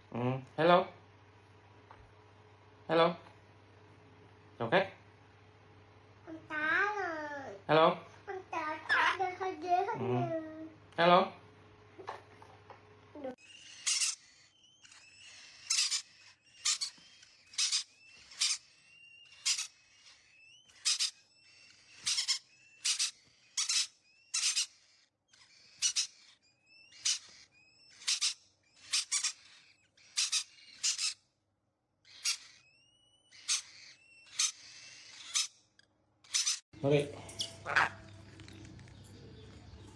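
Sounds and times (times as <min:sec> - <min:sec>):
parrot screeching: 0:08.6 - 0:09.5, 0:13.4 - 0:31.3, 0:32.0 - 0:36.6, 0:37.2 - 0:39.5.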